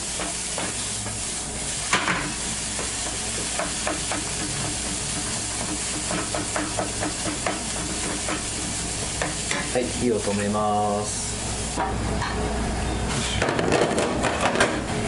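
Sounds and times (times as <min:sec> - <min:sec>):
vegetables sizzling in a frying pan: 0:00.0 - 0:11.9.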